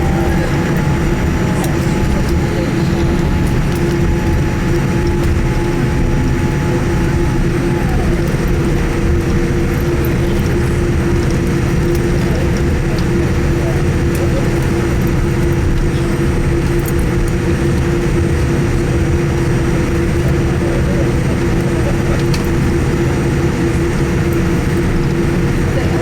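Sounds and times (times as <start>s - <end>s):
airplane engine hum: 0.0s - 26.0s.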